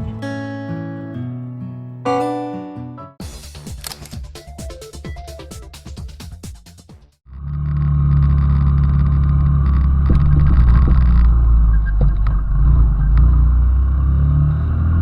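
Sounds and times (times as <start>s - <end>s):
small motorcycle engine running: 7.3s - 11.4s.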